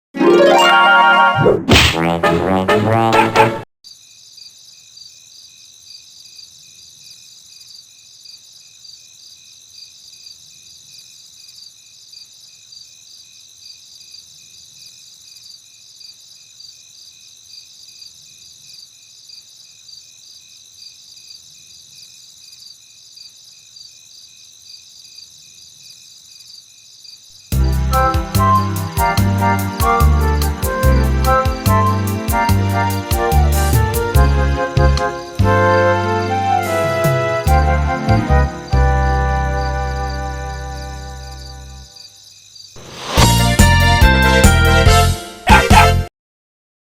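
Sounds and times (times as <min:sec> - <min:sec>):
crickets chirping: 0:03.8 - 0:27.7, 0:38.3 - 0:43.2
soft hiss of insects: 0:03.9 - 0:27.6, 0:41.3 - 0:43.2.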